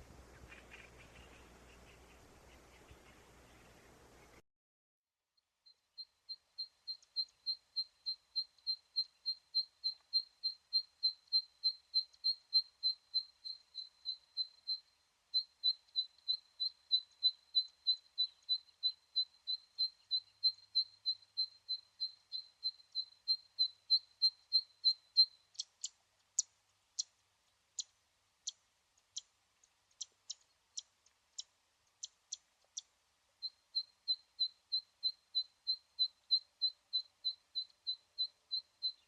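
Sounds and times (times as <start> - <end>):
animal clicking calls: 0.3 - 3.3, 25.5 - 27.1
small animal chirping: 0.3 - 3.6, 5.6 - 27.2, 27.8 - 39.0.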